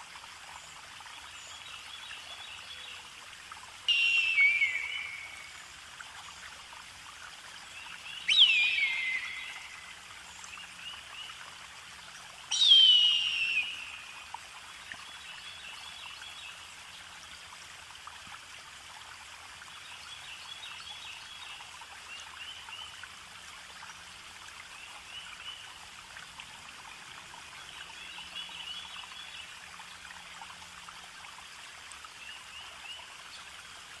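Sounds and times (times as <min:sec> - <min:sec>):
running water: 0:00.0 - 0:34.0
bird calls sweeping down: 0:03.9 - 0:05.5, 0:08.2 - 0:09.9, 0:12.5 - 0:14.1
faint bird chirps: 0:03.9 - 0:06.4, 0:07.8 - 0:11.4, 0:12.5 - 0:16.2.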